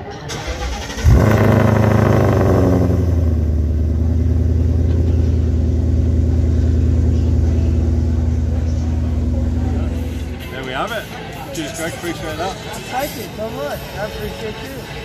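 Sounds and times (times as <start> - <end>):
car engine starting and idling: 0.0 - 11.3.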